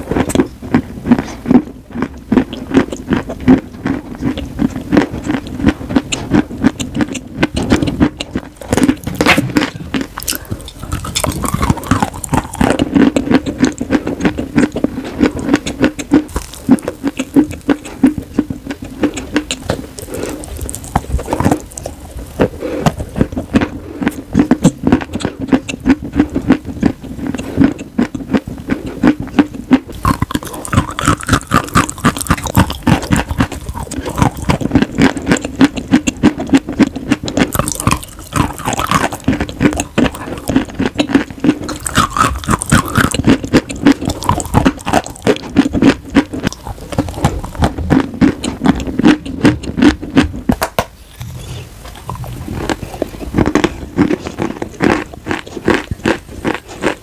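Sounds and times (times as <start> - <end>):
crunching chalk chewing: 0.0 - 57.0.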